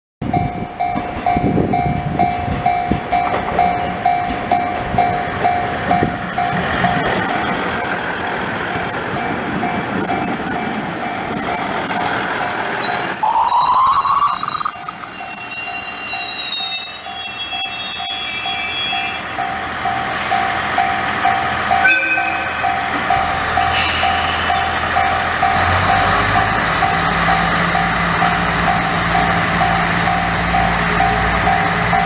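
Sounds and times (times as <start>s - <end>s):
crossing bell ringing: 0.2s - 32.0s
train rumbling past: 0.2s - 32.0s
wheel squeal: 7.0s - 19.3s
rising whine: 12.8s - 16.2s.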